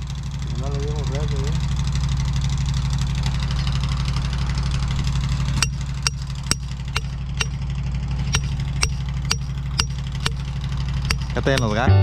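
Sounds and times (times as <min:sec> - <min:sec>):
vehicle engine idling: 0:00.0 - 0:12.0
regular ticking: 0:04.7 - 0:11.9.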